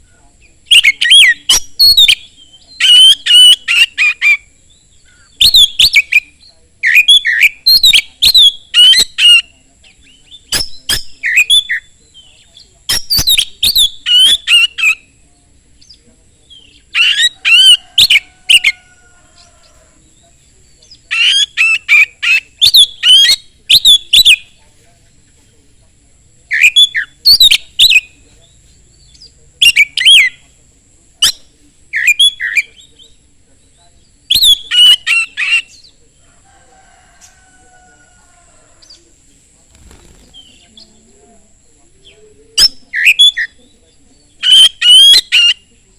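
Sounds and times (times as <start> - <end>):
bird singing whistles: 34.3 - 35.9, 44.4 - 45.6.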